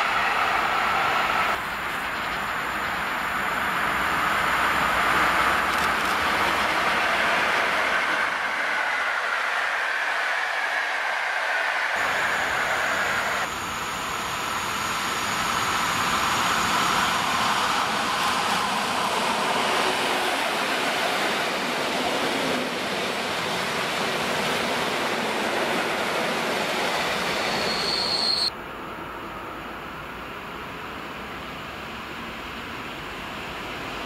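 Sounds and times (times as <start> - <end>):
train wheels rumbling on rail: 0.0 - 29.6
distant train running: 0.0 - 34.0
high wheel squeal: 26.9 - 28.5.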